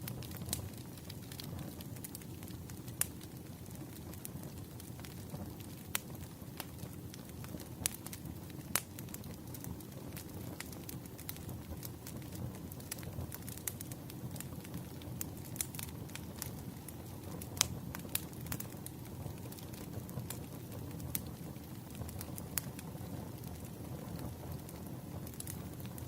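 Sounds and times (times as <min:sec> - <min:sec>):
fire popping and snapping: 0:00.0 - 0:26.0
wood fire crackling: 0:00.0 - 0:26.0.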